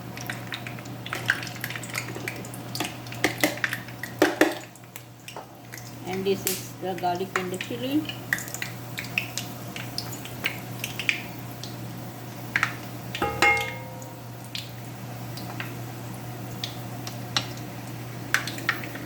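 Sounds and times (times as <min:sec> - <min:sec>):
spices frying in oil: 0:00.0 - 0:19.0
metal utensil clinking pot: 0:13.2 - 0:14.3.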